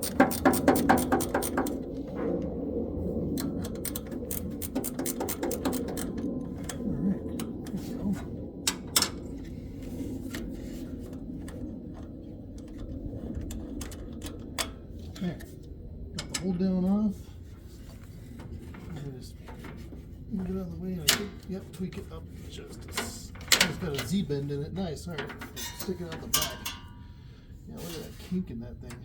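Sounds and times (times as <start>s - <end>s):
ratchet clicking: 0.0s - 1.8s, 3.6s - 6.2s
steady low hum: 0.0s - 29.0s
metal tools clinking: 25.1s - 27.0s.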